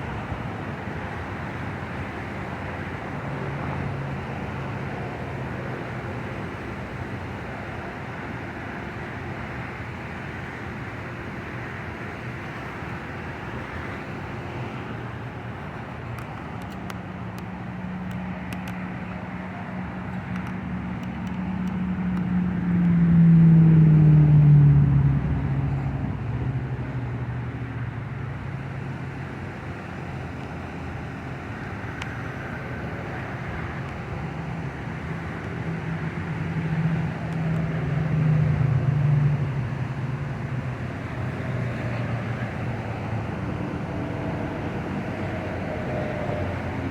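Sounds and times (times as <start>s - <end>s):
steady road noise: 0.0s - 46.9s.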